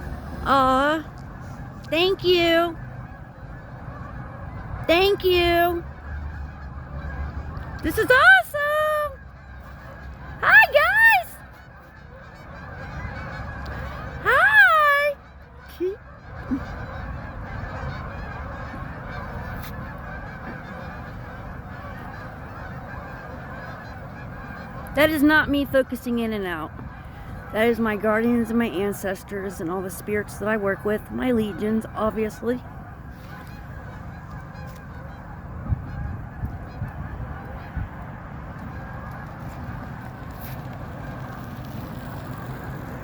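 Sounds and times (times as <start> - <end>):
steady low rumble: 0.0 - 7.9, 30.3 - 43.0
geese honking: 0.0 - 43.0.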